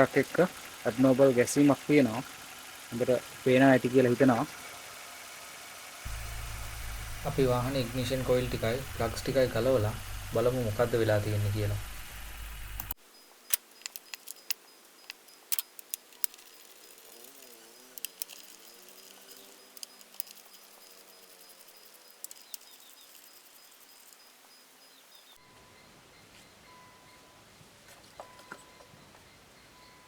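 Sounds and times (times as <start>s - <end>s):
misfiring engine running: 0.0s - 13.0s, 15.9s - 24.2s
sharp clicks and metallic taps: 12.5s - 17.0s, 18.0s - 24.2s.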